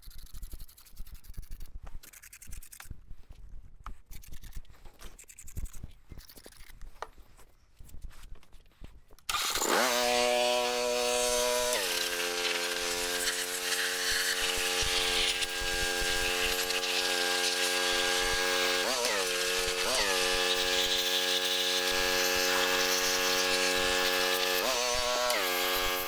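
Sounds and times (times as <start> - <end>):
motor-driven machine running: 9.3 - 26.0.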